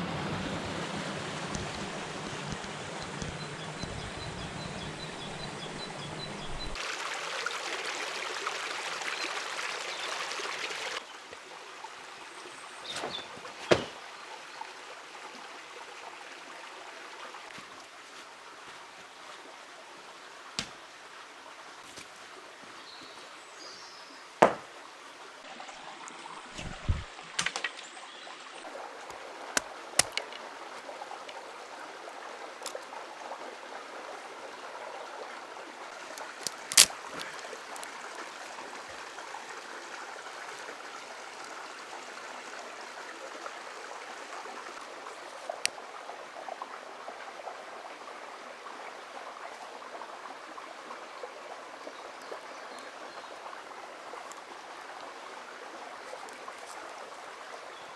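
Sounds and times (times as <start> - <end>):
river water flowing over stones: 0.0 - 3.5, 6.8 - 57.9
sharp knocks: 13.1 - 14.0, 24.4 - 24.7.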